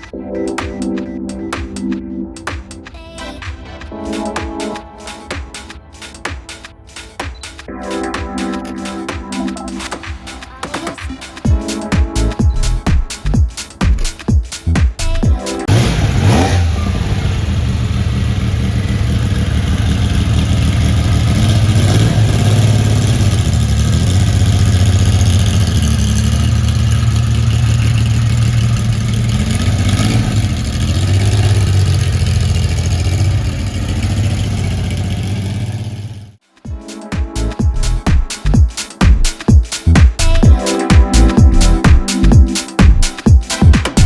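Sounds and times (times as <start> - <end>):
car engine starting and idling: 15.6 - 36.4.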